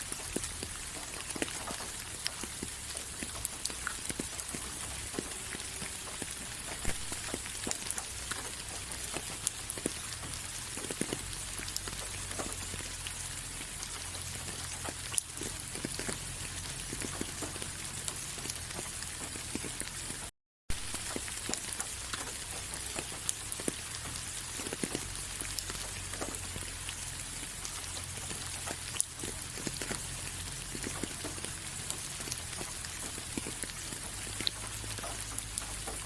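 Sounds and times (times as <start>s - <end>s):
raindrops pattering on a surface: 0.0s - 36.0s
steady rain hissing: 0.0s - 36.0s.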